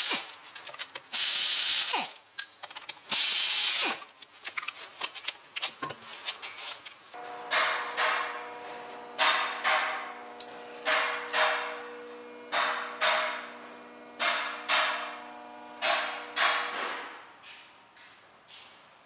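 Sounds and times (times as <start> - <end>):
hammer striking metal: 7.2 - 10.2, 10.8 - 13.6, 14.2 - 15.2, 15.8 - 17.2.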